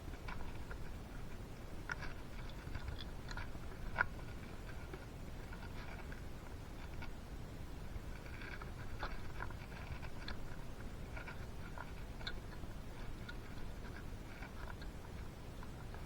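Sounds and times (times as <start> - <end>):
engine parts clicking and scraping: 0.0 - 7.2, 7.9 - 16.0
low background hum: 0.0 - 16.0.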